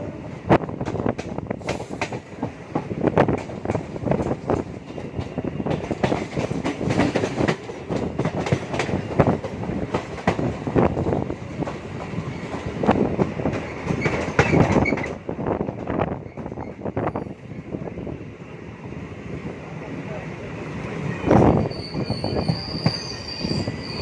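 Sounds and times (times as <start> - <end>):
rumble of running train: 0.0 - 24.0
train wheels clattering over rails: 0.6 - 17.0.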